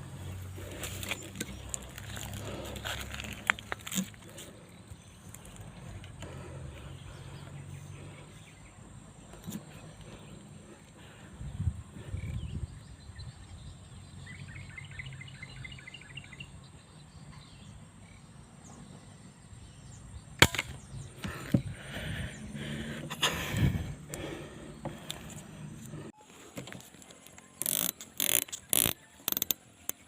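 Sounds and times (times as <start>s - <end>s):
wind rumbling on microphone: 11.3s - 13.9s, 20.8s - 24.0s.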